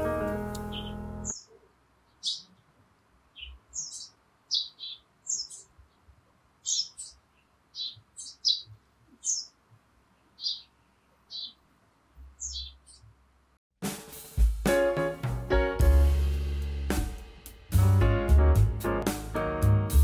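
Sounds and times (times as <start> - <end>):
music: 0.0 - 1.3, 13.8 - 20.0
small bird chirping: 0.6 - 13.2.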